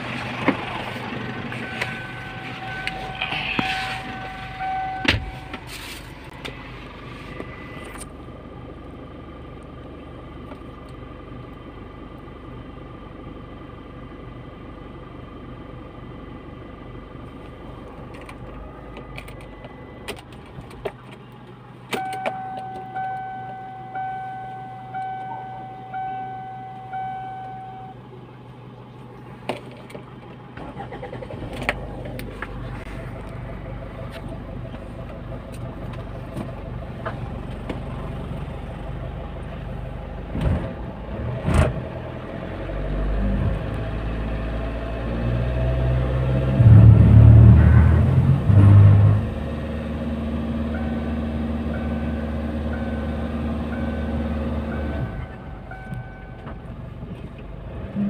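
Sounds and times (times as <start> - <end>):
diesel engine hum: 0.0 - 58.0
dashboard warning chime: 1.4 - 5.7, 22.0 - 28.0, 50.7 - 56.6.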